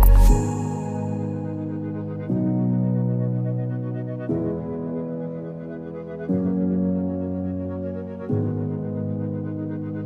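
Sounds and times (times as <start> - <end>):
ambient synthesizer chords: 0.0 - 7.2.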